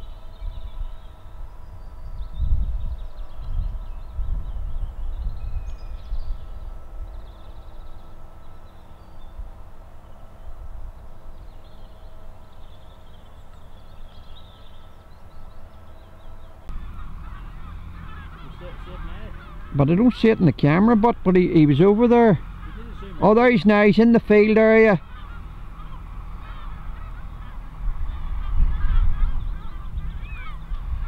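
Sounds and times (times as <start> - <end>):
wind rumbling on microphone: 0.0 - 13.1, 23.7 - 31.0
faint songbird chirps: 0.0 - 31.0
faint steady hum: 0.0 - 31.0.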